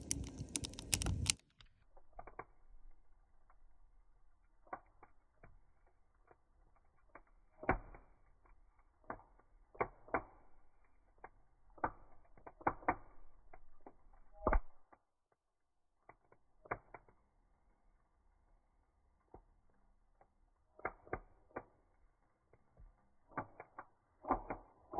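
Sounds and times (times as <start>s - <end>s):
wood fire crackling: 0.0s - 14.2s.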